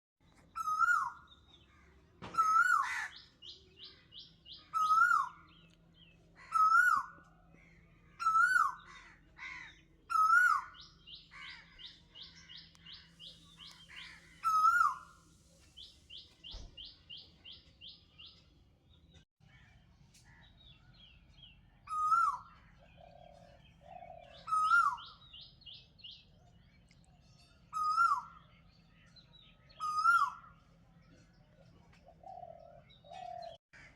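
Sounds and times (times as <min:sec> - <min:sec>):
birds trilling and chirping: 0:00.2 - 0:33.9
bird whistled call: 0:00.6 - 0:01.2, 0:14.4 - 0:15.2, 0:24.4 - 0:25.2.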